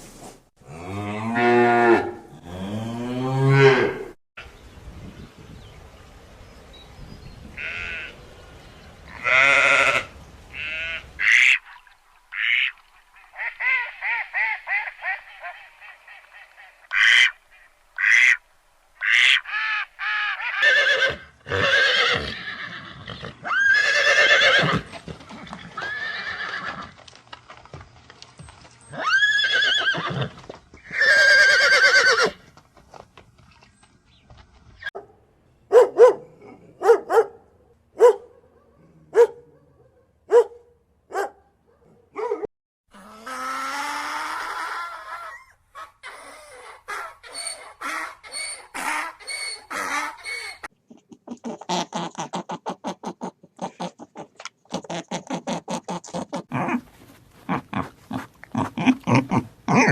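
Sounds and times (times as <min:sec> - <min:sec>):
farm animals calling: 0:07.6 - 0:08.2, 0:09.1 - 0:18.4, 0:19.0 - 0:26.8, 0:43.0 - 0:50.7.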